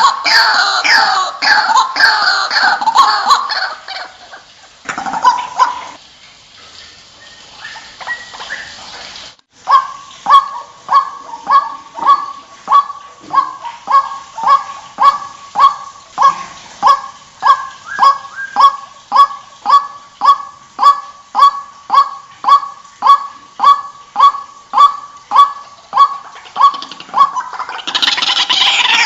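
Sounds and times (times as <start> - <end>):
waterhen calling: 0.0 - 29.0.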